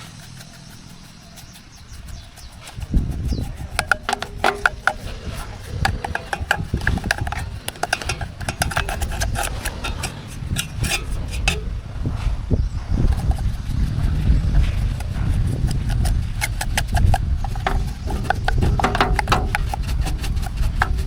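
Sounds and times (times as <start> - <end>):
knocks and ringing clinks: 3.8 - 10.0, 17.6 - 19.8.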